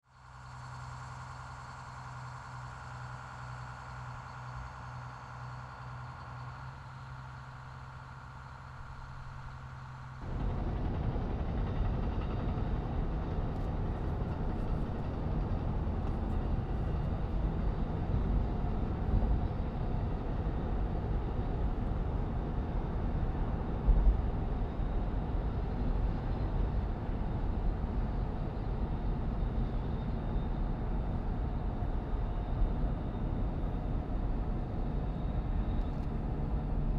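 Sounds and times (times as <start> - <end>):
train rumbling in motion: 8.7 - 36.9.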